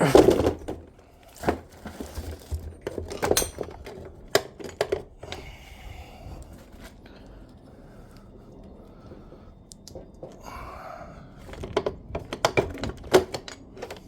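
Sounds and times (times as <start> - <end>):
metal parts clinking and knocking: 1.4 - 5.1, 11.4 - 14.0.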